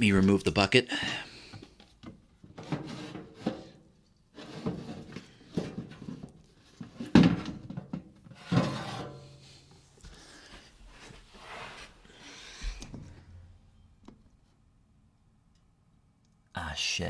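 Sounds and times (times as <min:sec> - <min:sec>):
plastic bucket scraping and knocking: 0:01.3 - 0:10.2.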